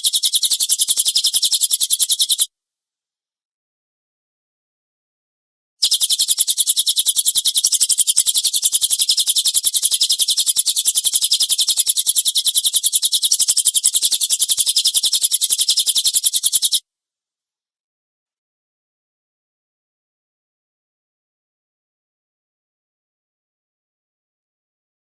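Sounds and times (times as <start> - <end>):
bird rapid dry call: 0.0 - 2.5, 5.8 - 16.8.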